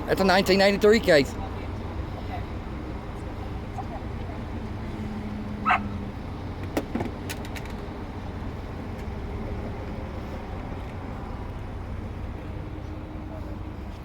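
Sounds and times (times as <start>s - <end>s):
vehicle running: 0.0s - 14.0s
dog bark: 5.6s - 6.0s.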